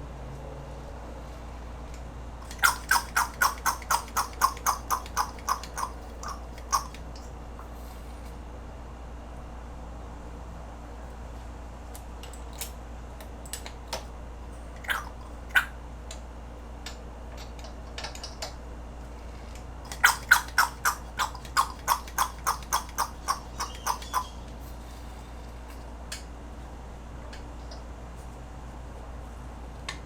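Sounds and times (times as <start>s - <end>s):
steady low hum: 0.8s - 29.9s
sharp clicks and taps: 2.4s - 7.0s.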